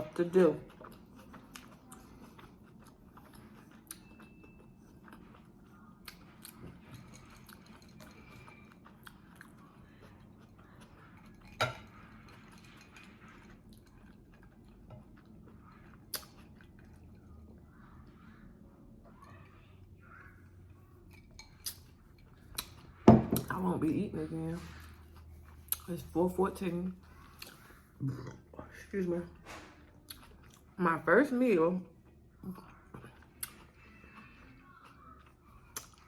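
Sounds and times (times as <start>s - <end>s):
person chewing food: 0.0s - 23.7s, 24.5s - 26.2s, 26.9s - 28.6s, 29.4s - 30.8s, 31.9s - 36.0s.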